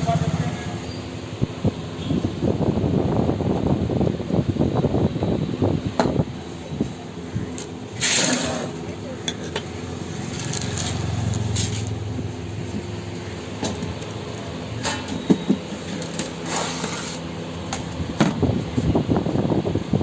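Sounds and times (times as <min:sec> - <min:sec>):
fast busy rattling of handling: 0:08.5 - 0:16.5.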